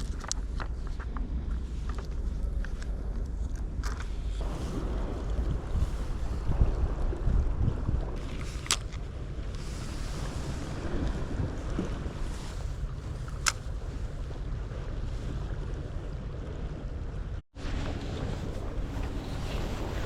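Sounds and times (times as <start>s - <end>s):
sea noise: 0.0s - 20.0s
wind buffeting microphone: 0.0s - 20.0s.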